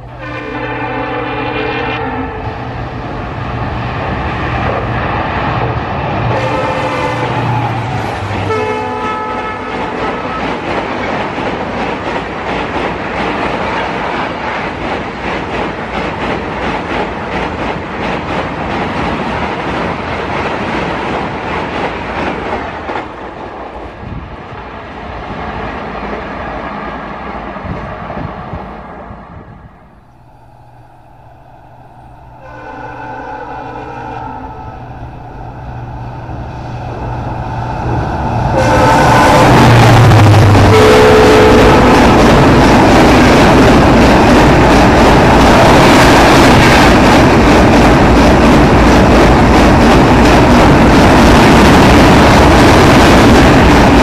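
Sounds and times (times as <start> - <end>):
diesel locomotive engine drone: 0.0 - 54.0
train horn: 0.1 - 2.6, 6.3 - 10.6, 30.1 - 35.5, 38.5 - 42.2
train wheels clattering over rail joints: 9.7 - 23.3.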